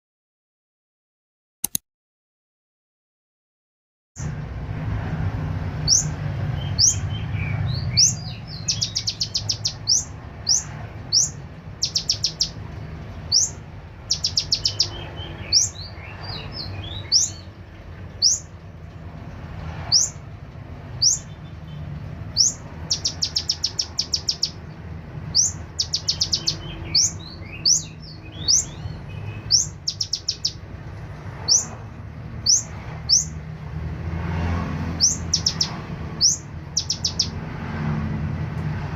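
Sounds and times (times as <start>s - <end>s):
sunbird singing: 5.8s - 18.7s, 19.9s - 20.3s, 20.9s - 30.7s, 31.4s - 31.8s, 32.4s - 33.4s, 34.9s - 37.4s.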